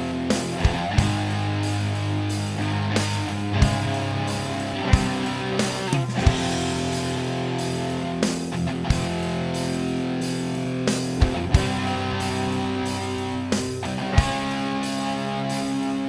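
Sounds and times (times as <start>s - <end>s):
guitar chords: 0.0s - 16.0s
sharp hits: 3.0s - 9.3s.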